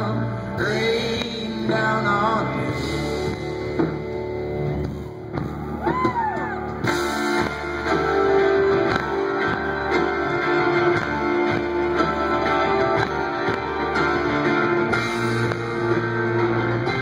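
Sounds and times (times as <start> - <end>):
live folk-rock band playing: 0.0 - 17.0
crowd calling out: 4.8 - 17.0.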